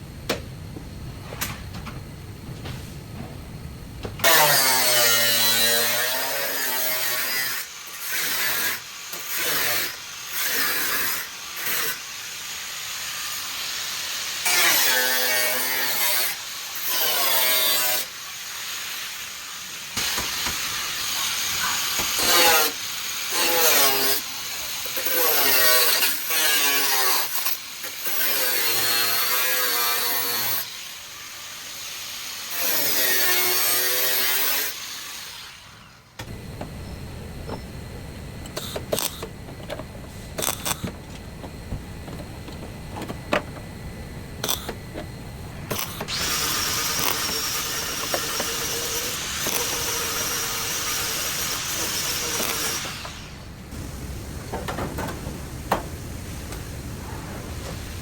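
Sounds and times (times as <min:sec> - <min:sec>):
power tool cutting sheet metal: 0:04.2 - 0:36.4, 0:40.4 - 0:41.0, 0:44.4 - 0:53.6.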